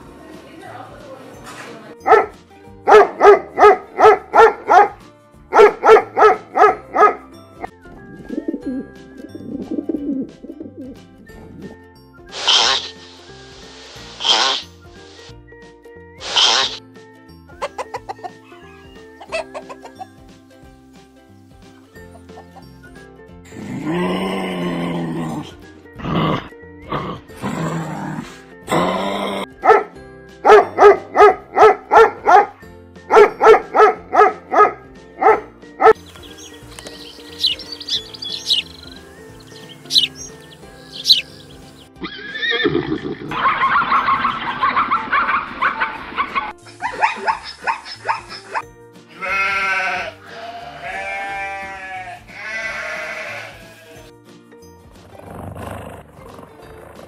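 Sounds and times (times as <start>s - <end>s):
soft background music: 0.0s - 57.0s
dog barking: 2.0s - 7.3s, 29.6s - 36.0s, 46.8s - 48.6s
sheep bleating: 49.1s - 54.1s.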